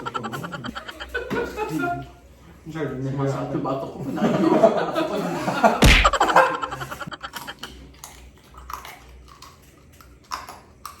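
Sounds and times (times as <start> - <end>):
loud thump: 5.8 - 6.4.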